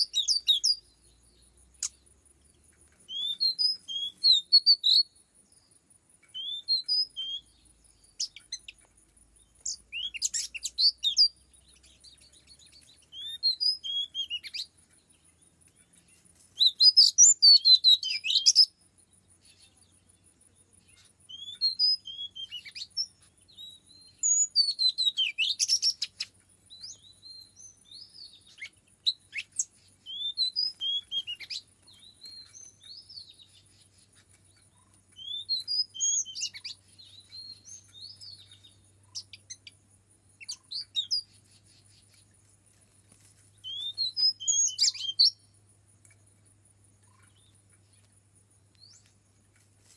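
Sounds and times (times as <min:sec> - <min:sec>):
bird singing whistled notes: 0:00.0 - 0:02.2, 0:02.9 - 0:42.3, 0:43.5 - 0:45.6, 0:48.7 - 0:49.1.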